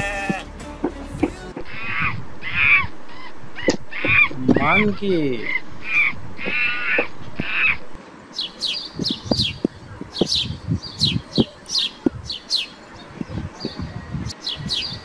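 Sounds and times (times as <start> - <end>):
harsh raspy animal call: 0.0 - 0.5, 1.7 - 7.9
bird chirping: 1.6 - 15.0.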